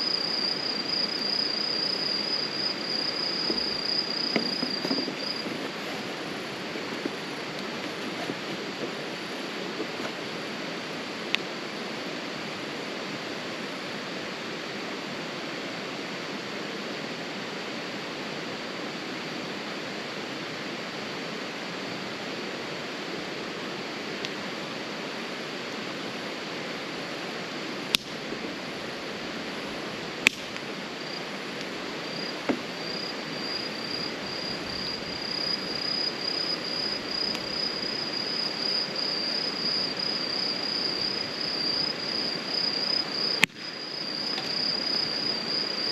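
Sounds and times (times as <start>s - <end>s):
cricket chirping: 0.0s - 15.2s, 15.8s - 45.9s
steady rushing noise: 0.0s - 45.9s
firewood popping: 3.5s - 6.2s, 30.2s - 30.6s.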